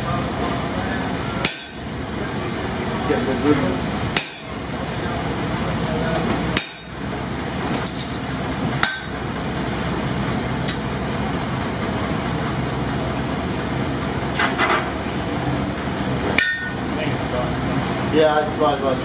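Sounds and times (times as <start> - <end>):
steady background noise: 0.0 - 19.0
hammer striking a steel punch: 1.4 - 1.9, 4.1 - 4.7, 6.6 - 7.0, 8.8 - 9.2, 16.4 - 16.8.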